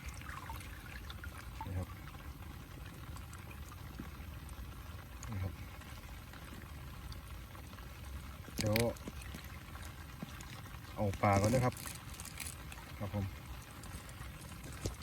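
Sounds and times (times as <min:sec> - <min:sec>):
water pouring: 0:00.0 - 0:15.0
person speaking a word: 0:11.0 - 0:11.8, 0:13.0 - 0:13.3.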